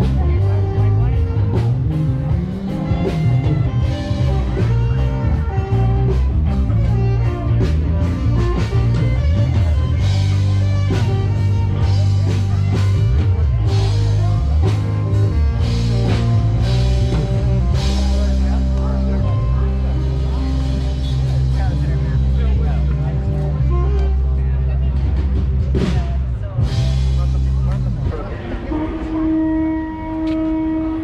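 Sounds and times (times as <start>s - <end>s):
rock music with guitar and drums: 0.0s - 30.9s.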